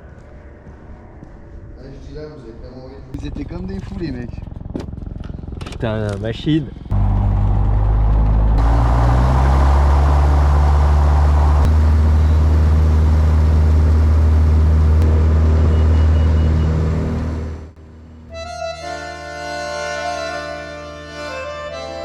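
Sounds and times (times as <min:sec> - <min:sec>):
light aircraft engine drone: 0:00.0 - 0:18.3
music with long held notes: 0:18.3 - 0:22.0.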